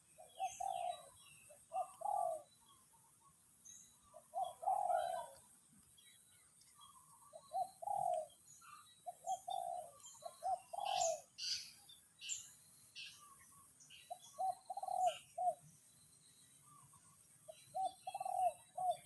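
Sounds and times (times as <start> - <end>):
dove cooing: 0.0 - 2.6, 4.1 - 5.6, 7.2 - 11.8, 14.1 - 15.6, 17.5 - 19.0
small birds chirping: 0.0 - 19.0.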